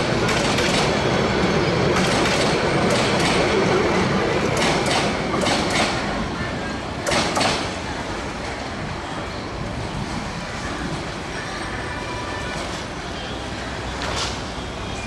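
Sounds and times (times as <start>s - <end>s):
train wheels clacking over joints: 0.1s - 1.1s, 1.8s - 3.8s, 4.4s - 6.1s.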